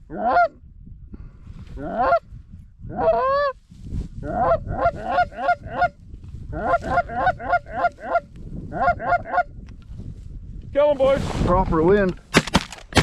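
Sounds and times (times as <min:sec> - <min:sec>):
goose honking: 0:04.3 - 0:05.9, 0:06.6 - 0:09.5.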